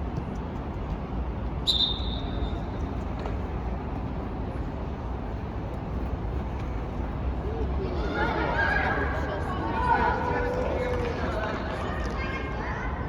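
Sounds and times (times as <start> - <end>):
referee's whistle blast: 1.7 - 2.5.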